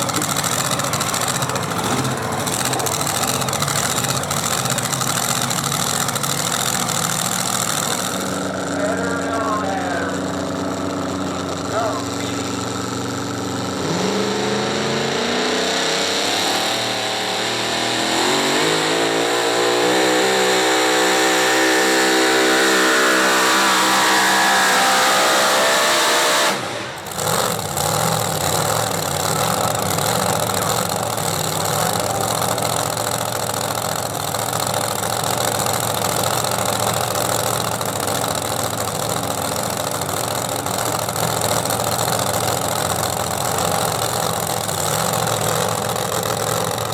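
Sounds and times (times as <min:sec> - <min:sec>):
engine running steadily: 0:00.0 - 0:46.9
engine revving under load: 0:07.2 - 0:32.7.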